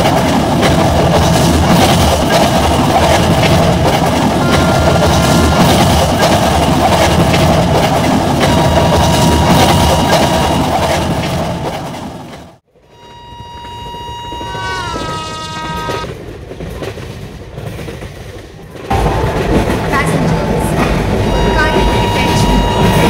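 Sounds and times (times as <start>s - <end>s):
train wheels clattering on rails: 0.0s - 12.6s, 13.4s - 23.0s
locomotive horn: 4.4s - 6.4s, 8.4s - 10.7s, 12.9s - 16.1s.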